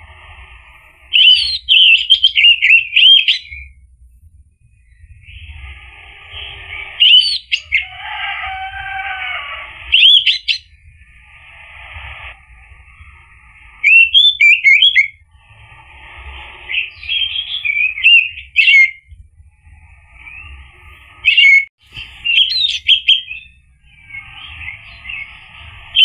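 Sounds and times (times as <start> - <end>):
bird whistled song: 1.0 - 3.8, 4.8 - 12.3, 12.9 - 15.2, 16.4 - 19.2, 20.1 - 26.0
bird scratchy chattering: 5.2 - 12.4, 13.8 - 15.1, 21.2 - 23.5.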